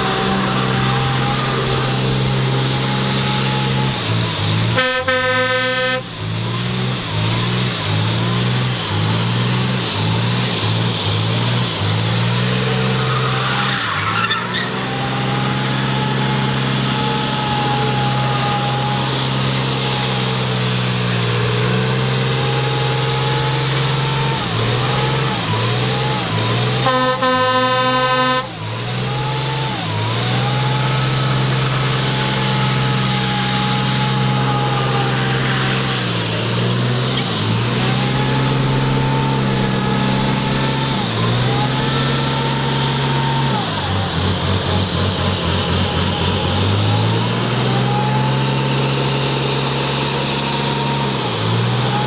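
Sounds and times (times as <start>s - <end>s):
car horn: 0.0s - 6.2s, 25.1s - 29.1s
car engine at high revs: 0.0s - 52.0s.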